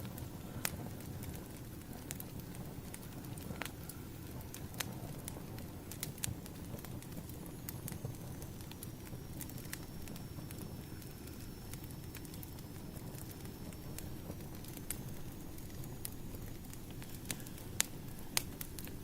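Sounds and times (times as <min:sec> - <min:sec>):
firewood crackling and popping: 0:00.0 - 0:19.0
low rumble of flames: 0:00.0 - 0:19.0.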